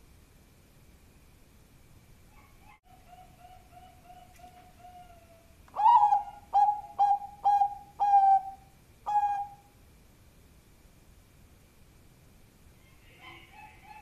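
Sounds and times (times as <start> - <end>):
dove cooing: 2.4 - 9.7.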